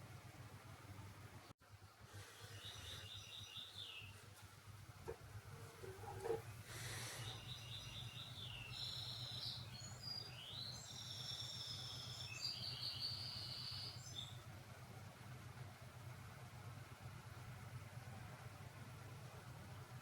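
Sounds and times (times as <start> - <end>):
low steady hum: 0.0 - 20.0
bird chirping song: 2.2 - 4.4, 5.6 - 14.5.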